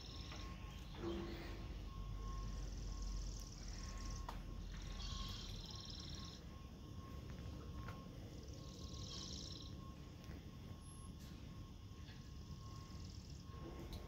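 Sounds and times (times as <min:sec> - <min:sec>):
small birds trilling: 0:00.0 - 0:06.6, 0:08.4 - 0:10.0.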